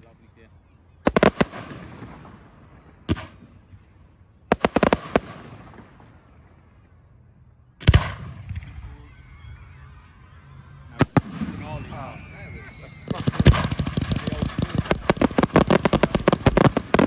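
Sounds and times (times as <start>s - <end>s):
firework shells bursting: 13.0s - 17.0s
heavy firework boom with echo: 13.0s - 17.0s
light crackling: 13.0s - 17.0s.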